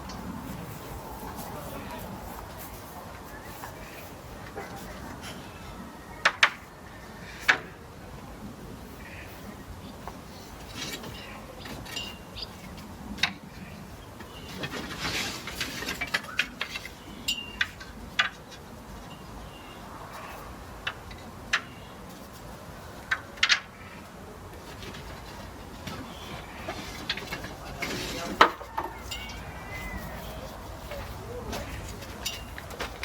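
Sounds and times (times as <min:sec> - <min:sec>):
brush swishing: 0:00.0 - 0:05.2, 0:24.5 - 0:33.0.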